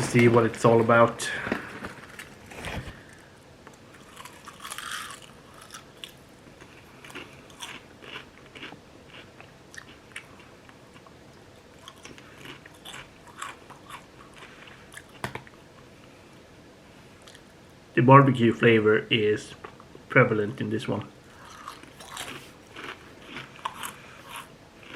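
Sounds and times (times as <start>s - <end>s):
person crunching potato chips: 3.8s - 11.1s, 11.7s - 15.4s, 21.3s - 24.9s.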